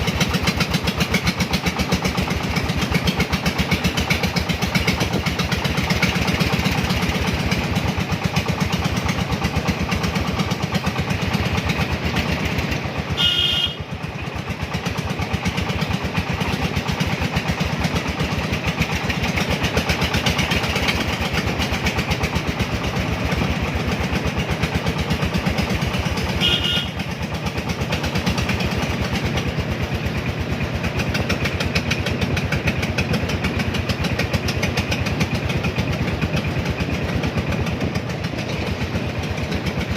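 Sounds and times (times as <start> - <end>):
vehicle engine running: 0.0 - 39.9
short horn beeps: 13.2 - 13.8, 26.4 - 27.0.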